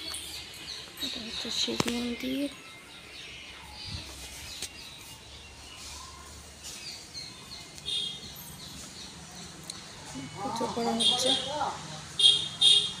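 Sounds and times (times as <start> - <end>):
faint background noise: 0.0 - 13.0
small birds chirping: 0.0 - 13.0.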